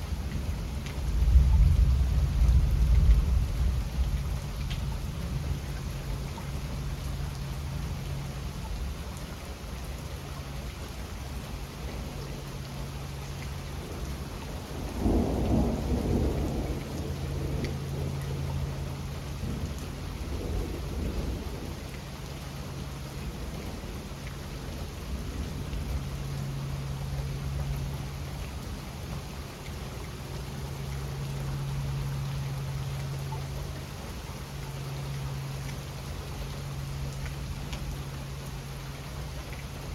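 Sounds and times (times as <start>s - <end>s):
steady rain: 0.0s - 39.9s
thunder rumbling: 0.3s - 7.0s, 13.9s - 21.8s.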